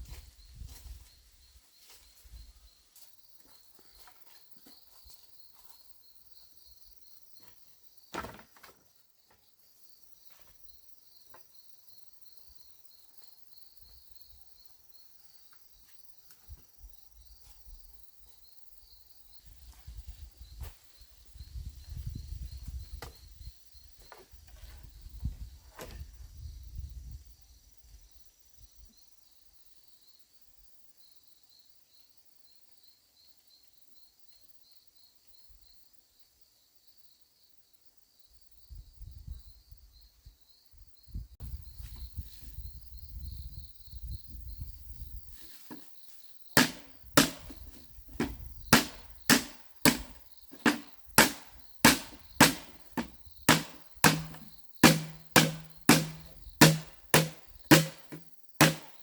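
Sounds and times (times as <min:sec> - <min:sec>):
faint insect chirping: 0:00.0 - 0:59.0
sharp tool blows: 0:46.6 - 0:47.6, 0:48.2 - 0:59.0.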